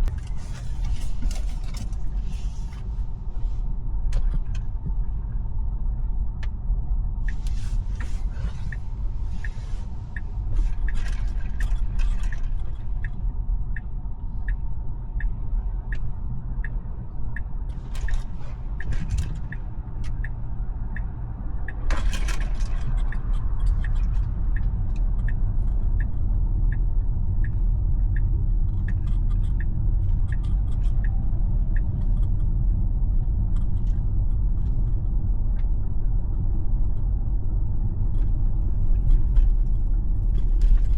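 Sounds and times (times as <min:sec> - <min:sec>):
road and tyre rumble: 0:00.0 - 0:40.9
turn signal ticking: 0:07.2 - 0:40.8.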